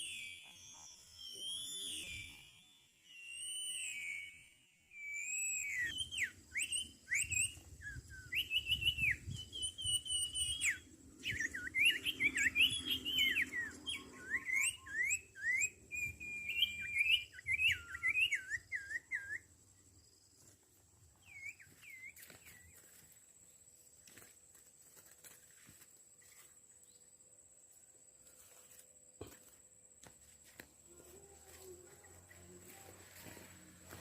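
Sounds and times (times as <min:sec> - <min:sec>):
faint steady high tone: 0:00.0 - 0:07.8, 0:28.2 - 0:34.0
birds whistling calls: 0:00.0 - 0:19.5, 0:21.2 - 0:23.0.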